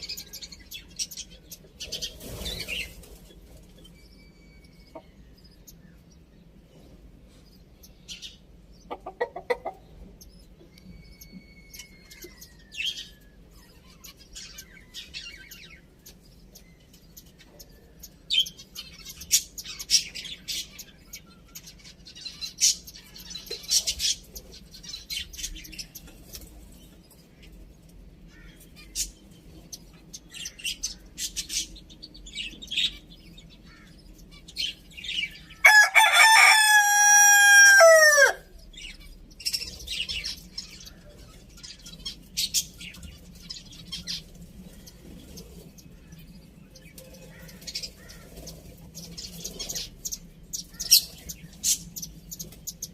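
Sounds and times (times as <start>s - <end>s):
chickens chirping and clucking: 0.0s - 52.9s
rooster crowing: 35.6s - 38.5s.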